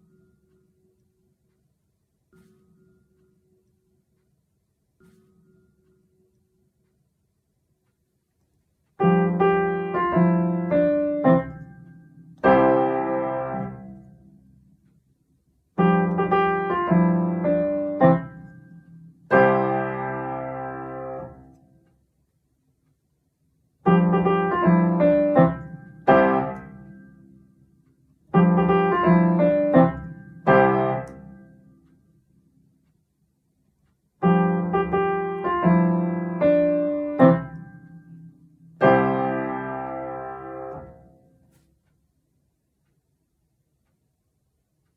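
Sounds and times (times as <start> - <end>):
piano phrases: 9.0 - 14.2, 15.8 - 21.6, 23.8 - 27.1, 28.3 - 31.5, 34.2 - 41.2.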